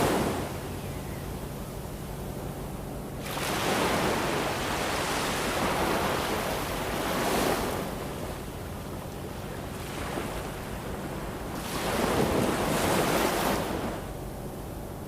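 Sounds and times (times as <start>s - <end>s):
surf washing in with hiss: 0.0s - 0.8s, 3.2s - 14.1s
ocean waves breaking: 0.0s - 14.2s.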